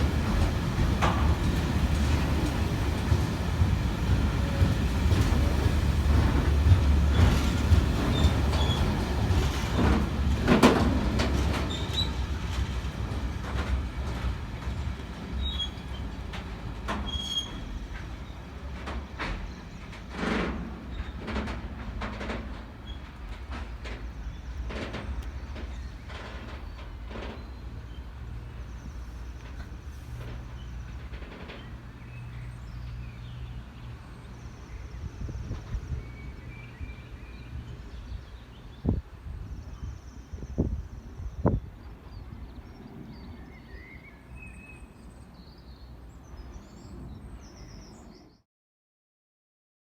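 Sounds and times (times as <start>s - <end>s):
wheel squeals: 0.0s - 12.7s, 15.4s - 16.2s, 16.9s - 18.5s
wagons clanking over rail joints: 0.0s - 38.3s
freight train rumbling: 0.0s - 48.3s.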